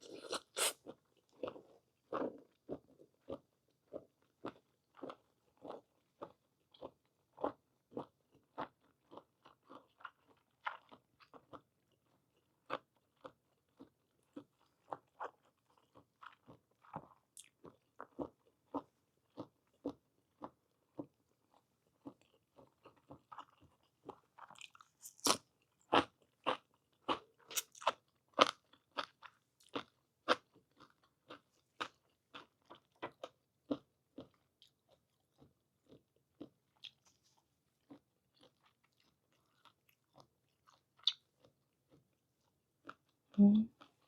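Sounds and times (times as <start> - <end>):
chewing squid mouth sounds: 0.0 - 42.2.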